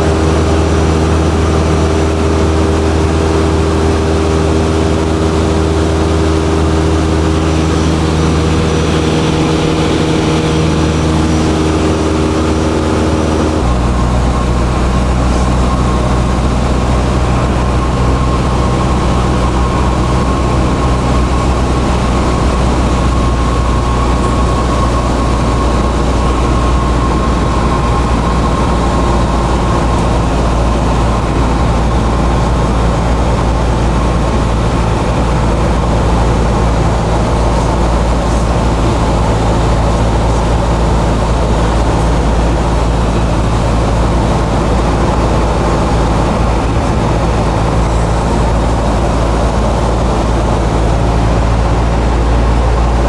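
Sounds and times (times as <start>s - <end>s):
light airplane engine droning: 0.0s - 53.0s.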